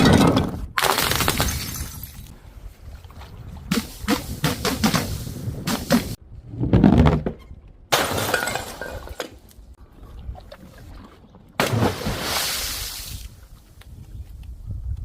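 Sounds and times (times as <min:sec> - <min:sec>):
glass bottles shattering: 0:01.0 - 0:02.3, 0:08.0 - 0:09.3.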